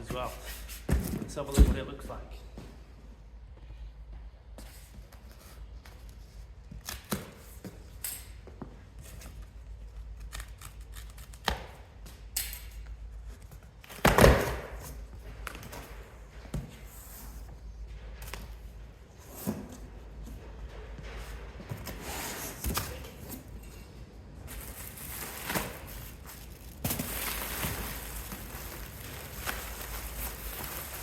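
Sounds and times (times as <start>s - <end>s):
packaging crinkling rustle: 24.5s - 31.0s.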